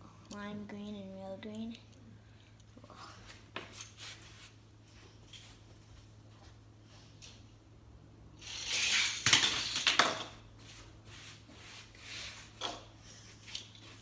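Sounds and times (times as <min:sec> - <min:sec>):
toy cars clacking: 0:08.4 - 0:10.3
toy cars rattling down track: 0:08.4 - 0:10.3.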